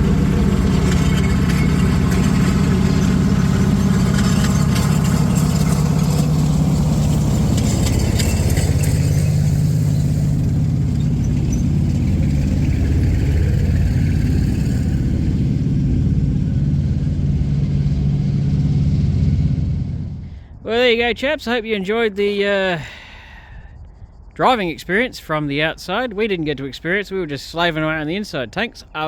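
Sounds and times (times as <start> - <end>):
clicking and clatter: 0.0 - 15.2
tank engine drone: 0.0 - 21.2.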